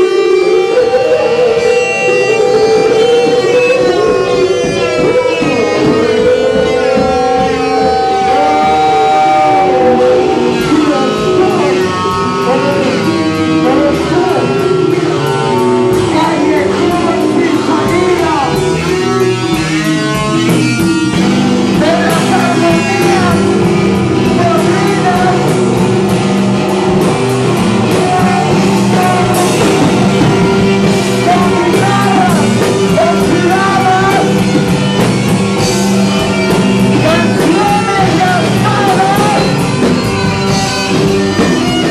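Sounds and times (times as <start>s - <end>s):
loud live band music: 0.0s - 41.9s.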